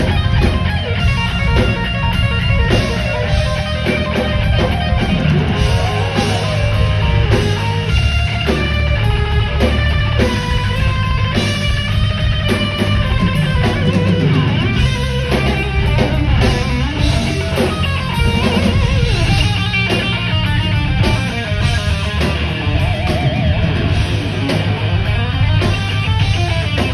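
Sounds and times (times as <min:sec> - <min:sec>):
heavy metal band playing: 0:00.0 - 0:26.9.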